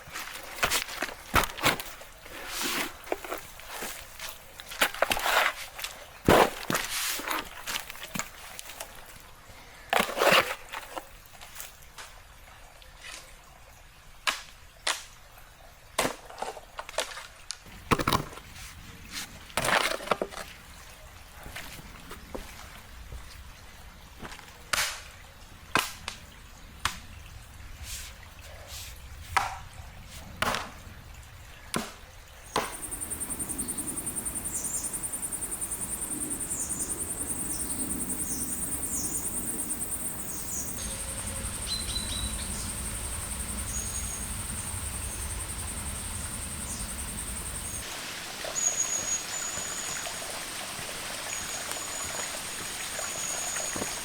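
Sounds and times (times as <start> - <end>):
water trickling: 32.4 - 54.0
small birds chirping: 32.5 - 47.9.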